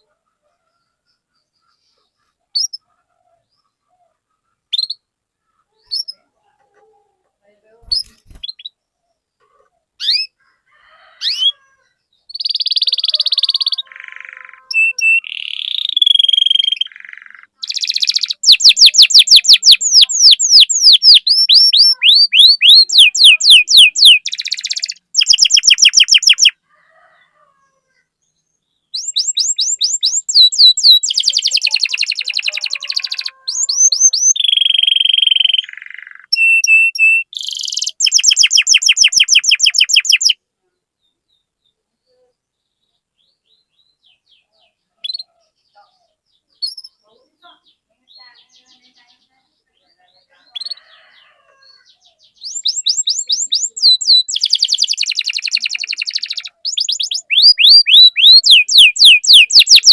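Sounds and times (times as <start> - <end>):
canary singing: 0.0 - 40.4, 42.9 - 59.9.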